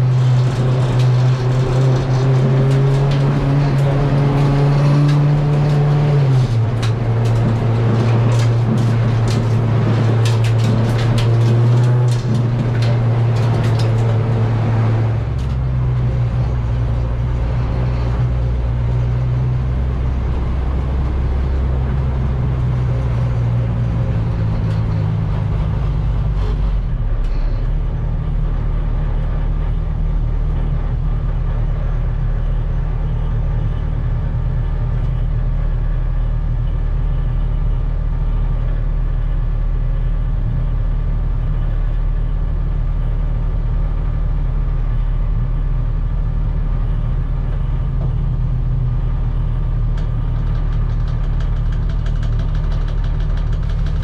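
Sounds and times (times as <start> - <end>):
rattle of clicks: 0.0 - 14.5, 49.8 - 54.0
race car engine running: 0.0 - 54.0.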